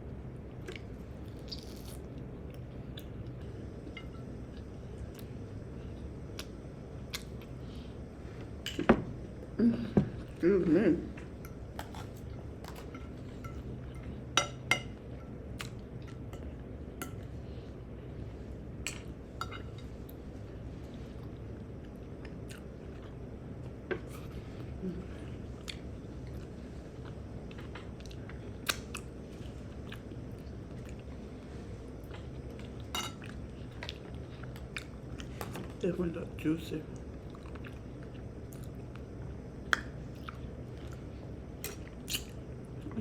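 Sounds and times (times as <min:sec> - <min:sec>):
steady low hum: 0:00.0 - 0:43.0
quiet chewing: 0:06.2 - 0:07.6, 0:15.5 - 0:16.4, 0:20.9 - 0:31.3, 0:37.0 - 0:43.0
cutlery clinking on a plate: 0:32.9 - 0:33.3.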